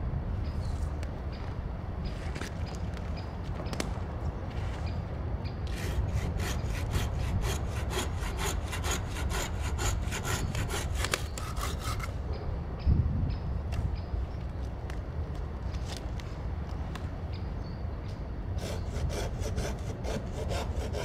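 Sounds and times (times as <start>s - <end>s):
hand saw cutting wood: 5.7s - 12.2s, 18.6s - 21.0s.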